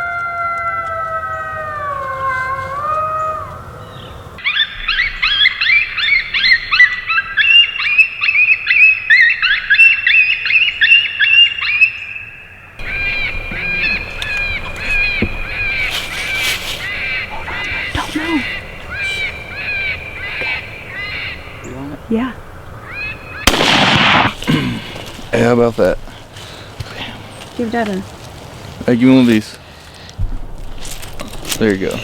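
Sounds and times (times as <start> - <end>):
coyote howling: 0.0 - 12.0, 12.8 - 25.4
coyote yips and whines: 4.4 - 12.0.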